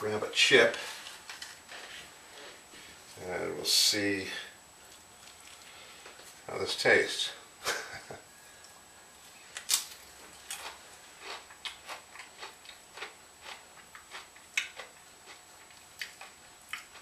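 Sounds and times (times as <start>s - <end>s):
tortilla chip crunching: 9.6s - 17.0s.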